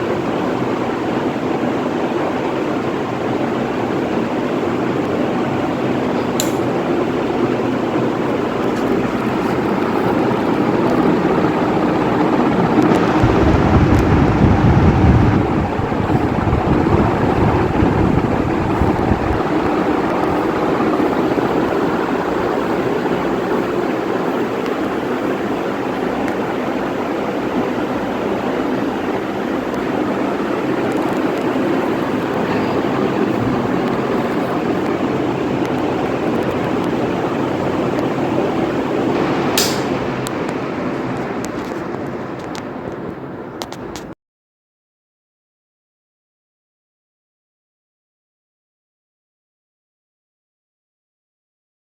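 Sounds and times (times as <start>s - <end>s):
wind buffeting microphone: 0.0s - 41.4s
ceiling fan air rush: 0.0s - 43.9s.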